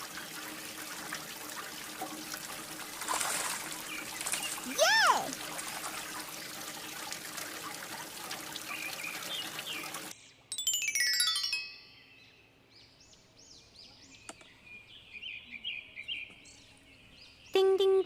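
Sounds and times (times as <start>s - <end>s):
water running and splashing: 0.0s - 10.1s
birds chirping: 3.1s - 5.4s, 8.5s - 10.4s
descending chime tones: 10.5s - 12.4s.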